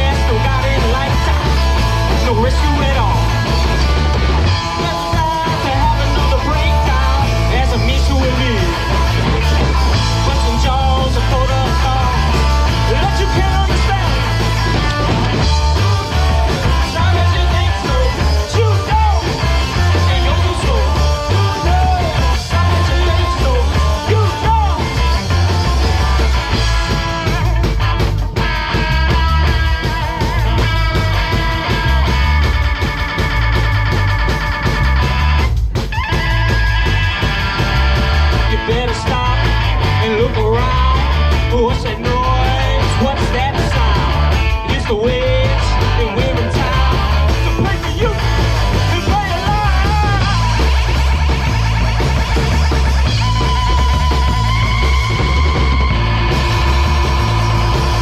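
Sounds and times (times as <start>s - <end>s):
person singing: 0.0s - 27.8s, 38.2s - 58.0s
rock band playing live: 0.0s - 58.0s.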